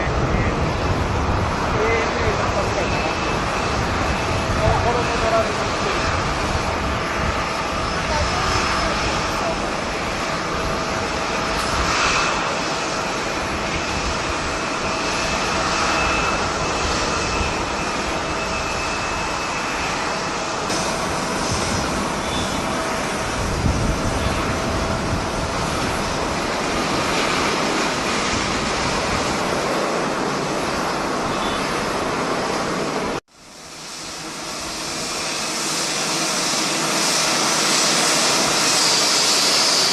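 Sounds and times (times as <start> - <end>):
jet engines rushing: 0.0 - 39.9
faint high whine: 14.6 - 24.6, 30.7 - 32.0.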